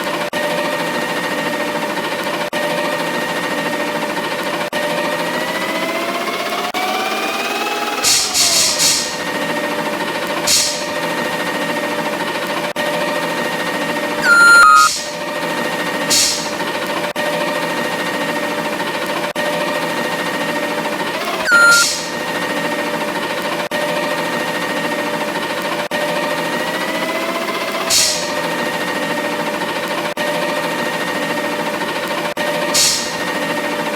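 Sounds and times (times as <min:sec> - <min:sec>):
brief tone: 0:14.2 - 0:15.2, 0:21.4 - 0:22.3
short air hisses: 0:16.1 - 0:16.6, 0:32.8 - 0:33.2.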